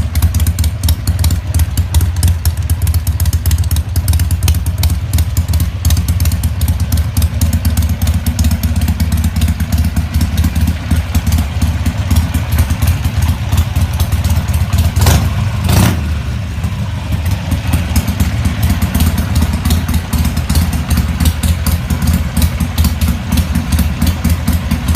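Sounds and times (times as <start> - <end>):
motorcycle engine idling: 0.0 - 24.9
engine revving burst: 15.0 - 16.8.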